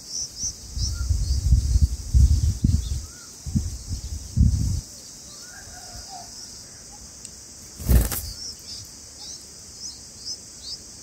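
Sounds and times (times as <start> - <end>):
nestlings chirping: 0.0 - 5.5, 6.1 - 11.0
high insect drone: 0.0 - 11.0
bird wing-flutter thump: 7.8 - 8.4.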